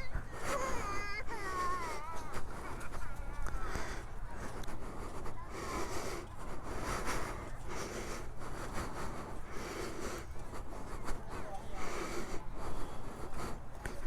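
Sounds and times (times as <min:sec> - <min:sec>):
crowd murmur: 0:00.0 - 0:14.0.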